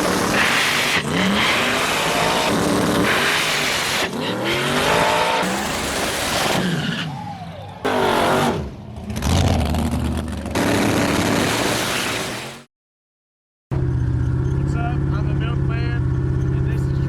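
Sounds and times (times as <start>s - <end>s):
race car engines revving: 0.0s - 12.5s, 13.7s - 17.0s.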